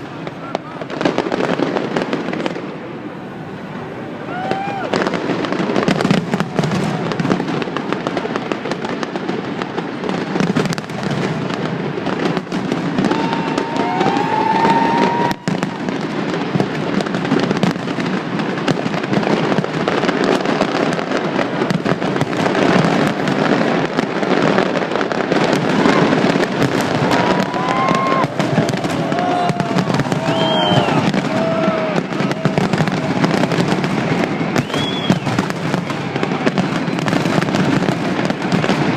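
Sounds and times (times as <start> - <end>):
fireworks crackling: 0.0 - 38.9
sliding whistle-like tones: 30.2 - 31.1, 34.5 - 35.4.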